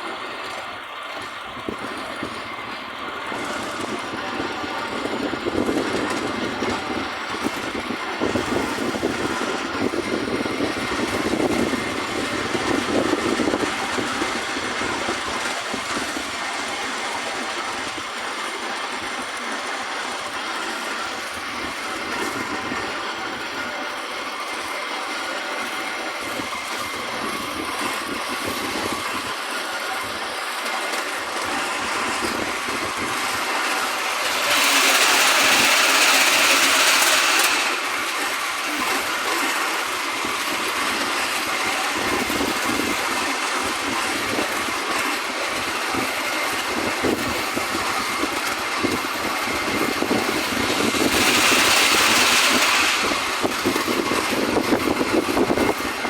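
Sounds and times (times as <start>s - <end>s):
train wheels rumbling on track: 0.0s - 56.0s
loud rushing hiss: 31.1s - 56.0s.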